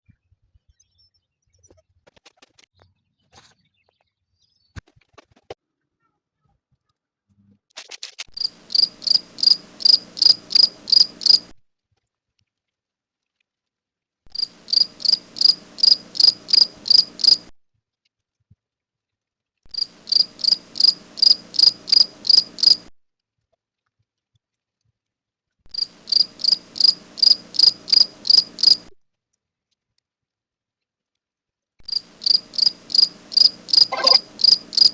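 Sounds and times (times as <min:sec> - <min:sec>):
cricket chirping: 0:08.4 - 0:11.5, 0:14.4 - 0:17.5, 0:19.7 - 0:22.9, 0:25.7 - 0:28.9, 0:31.9 - 0:34.9.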